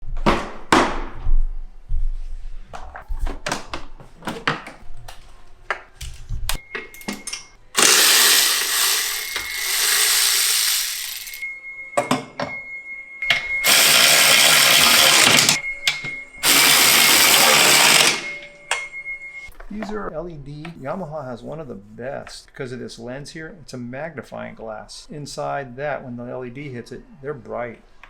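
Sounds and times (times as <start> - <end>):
parts being handled: 2.9 - 11.4
power tool running: 7.8 - 11.4, 13.6 - 15.6, 16.4 - 18.4.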